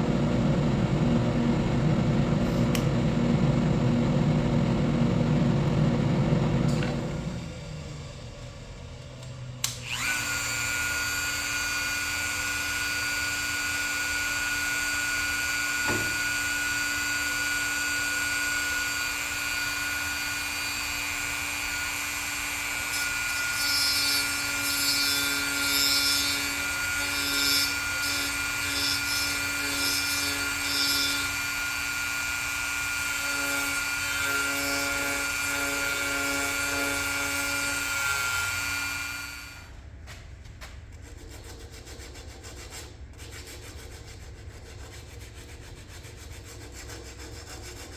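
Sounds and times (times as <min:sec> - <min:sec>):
wood lathe motor whine: 0:09.6 - 0:39.7.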